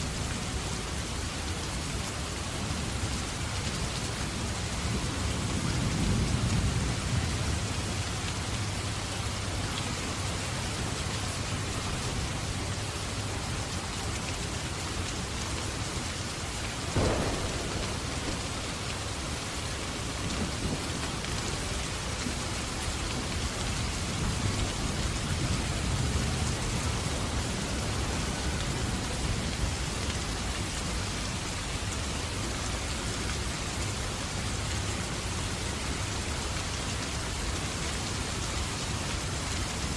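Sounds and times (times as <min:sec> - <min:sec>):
heavy rain: 0:00.0 - 0:39.9
sharp crack: 0:16.9 - 0:19.9
distant thunder rumbling: 0:16.9 - 0:21.7.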